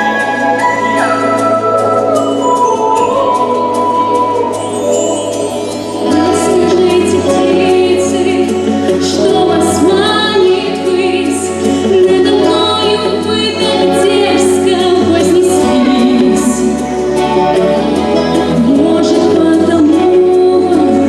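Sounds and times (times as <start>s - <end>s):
voices holding wavering notes: 0.0s - 21.0s.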